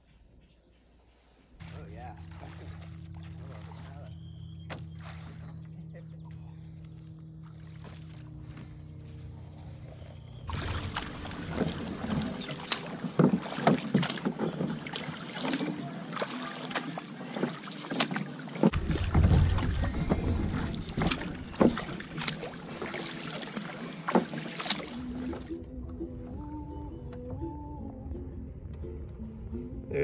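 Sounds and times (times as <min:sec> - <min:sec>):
paddle splashing in water: 0:01.6 - 0:05.6, 0:07.0 - 0:25.6
water against hull: 0:01.6 - 0:27.9.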